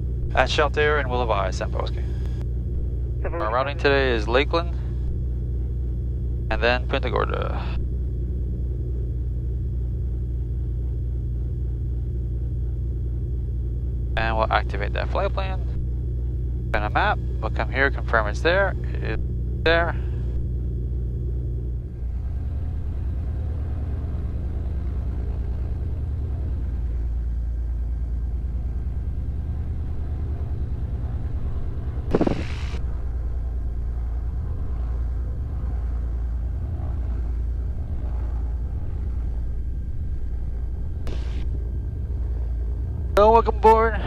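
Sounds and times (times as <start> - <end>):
aircraft piston engines idling: 0.0 - 8.1, 16.8 - 20.6, 21.7 - 44.0.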